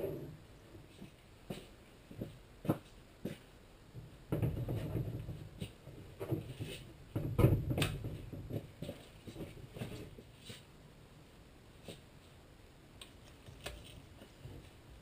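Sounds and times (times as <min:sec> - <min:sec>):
knocks and clicks of wood and tools: 0:03.9 - 0:10.2.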